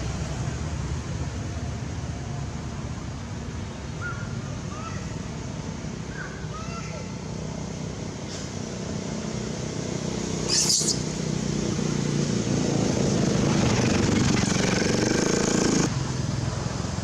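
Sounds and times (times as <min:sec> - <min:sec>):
vehicle engine running: 0:13.1 - 0:15.9.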